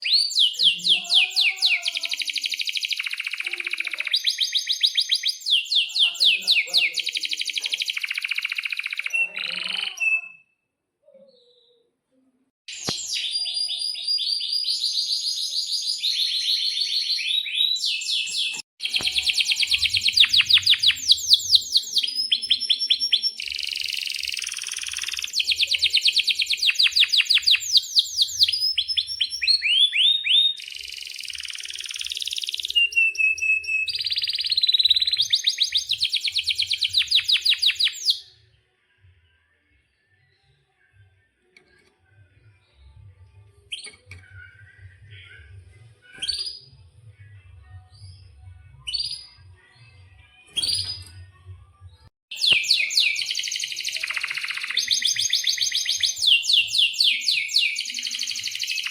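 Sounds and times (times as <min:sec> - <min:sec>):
canary singing trills: 0:00.0 - 0:10.5, 0:12.7 - 0:38.3, 0:52.3 - 0:58.9.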